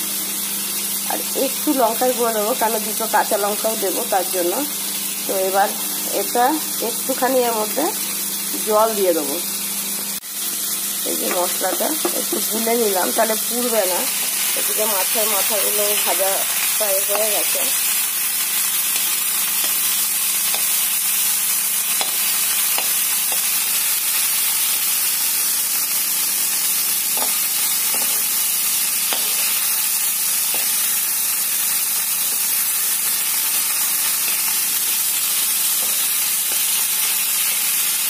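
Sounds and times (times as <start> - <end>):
fish sizzling in hot oil: 0.0 - 38.0
metal spatula scraping and tapping: 27.2 - 28.2, 29.1 - 29.5.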